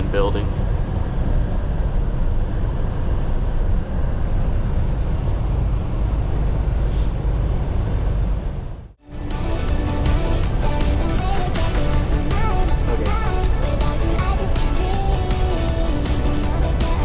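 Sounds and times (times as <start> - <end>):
road and tyre noise: 0.0 - 17.0
truck engine drone: 0.0 - 17.0.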